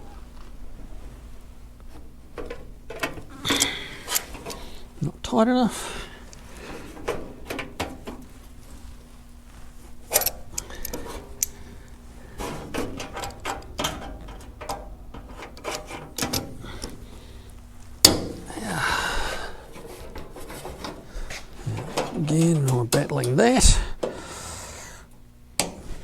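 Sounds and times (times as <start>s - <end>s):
sheet metal panels clanking: 2.1s - 8.9s, 10.0s - 24.3s
scraping rustle: 5.8s - 23.2s
loud metal clank: 18.0s - 18.5s.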